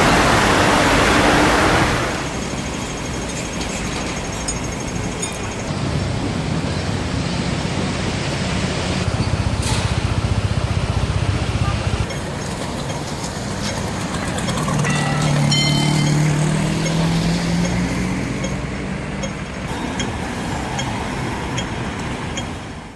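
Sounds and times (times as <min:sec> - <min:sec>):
street traffic: 0:00.0 - 0:22.9
vehicle engine passing close: 0:05.7 - 0:22.2.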